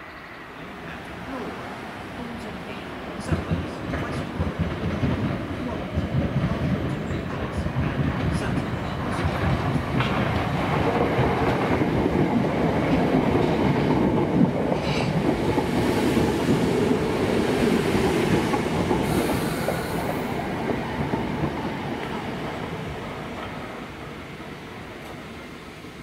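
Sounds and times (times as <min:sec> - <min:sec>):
electric train passing: 0:00.0 - 0:26.0
train wheels clattering on rails: 0:03.2 - 0:23.8.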